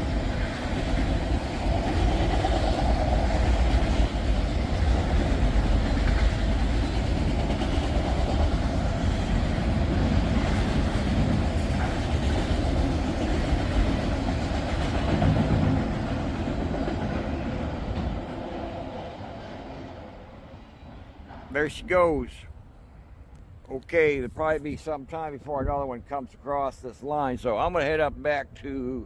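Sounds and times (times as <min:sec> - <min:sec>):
wheels clacking on rail joints: 0:00.0 - 0:19.0
freight train rumbling past: 0:00.0 - 0:23.3.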